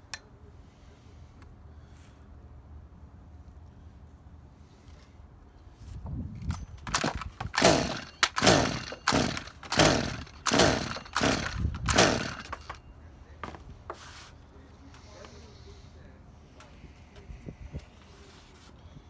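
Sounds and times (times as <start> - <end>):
chainsaw starter rope pulls: 6.4 - 12.8.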